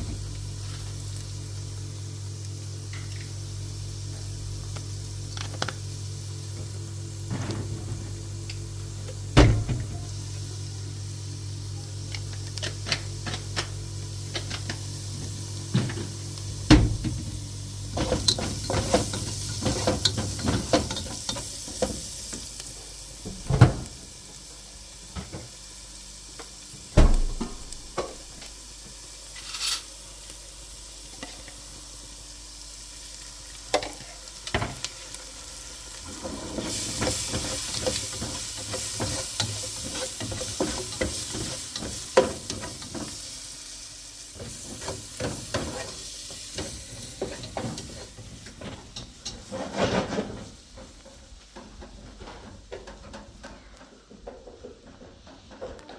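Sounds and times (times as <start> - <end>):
food sizzling in a pan: 0.0 - 51.1.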